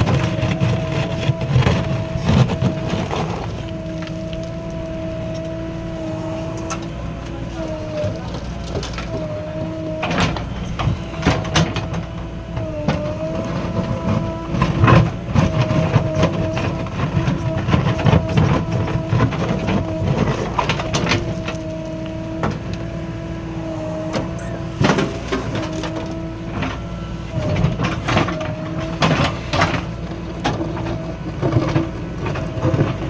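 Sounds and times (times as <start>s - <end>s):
diesel engine whining under load: 0.0s - 33.0s
clanks and knocks: 6.6s - 22.9s, 23.6s - 33.0s.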